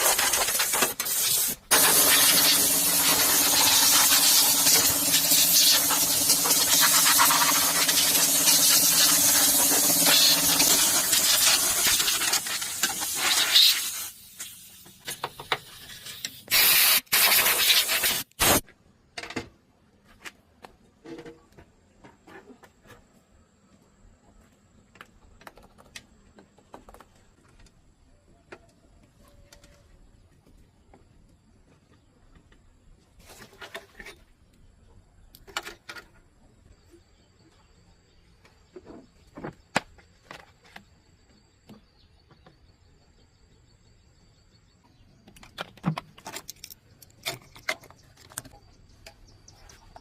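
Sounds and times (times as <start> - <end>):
short hissing blasts: 0.0 - 14.8, 16.5 - 18.6
loud hissing spray: 0.0 - 18.6.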